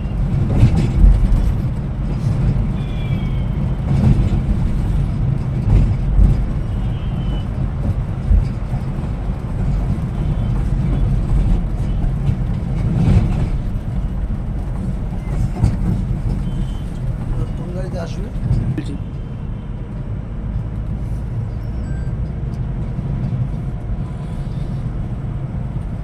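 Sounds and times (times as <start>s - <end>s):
bus engine and road rumble: 0.0s - 26.0s
faint high squeaks: 21.4s - 22.5s.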